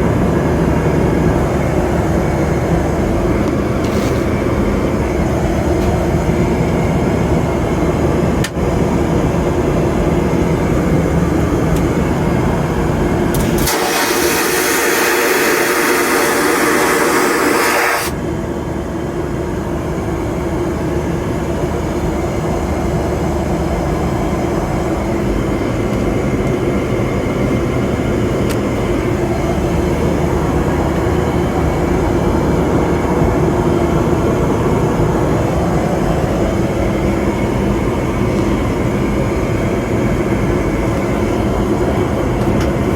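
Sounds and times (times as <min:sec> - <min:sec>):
airliner drone in flight: 0:00.0 - 0:42.9
vacuum toilet flushing whoosh: 0:13.4 - 0:18.2.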